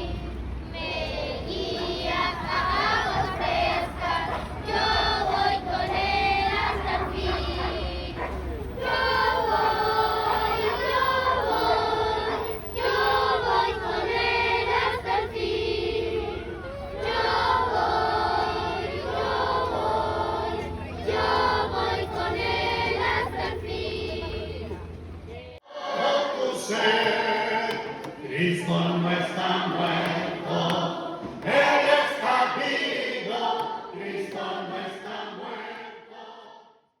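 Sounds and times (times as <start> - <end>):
children singing together: 0.8 - 24.7, 25.6 - 36.6.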